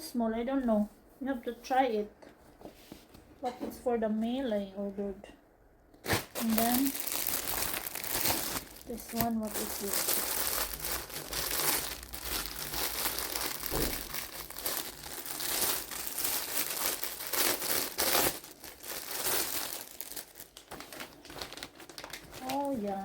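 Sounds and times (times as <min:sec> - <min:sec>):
plastic packaging crinkling: 0:06.0 - 0:23.0.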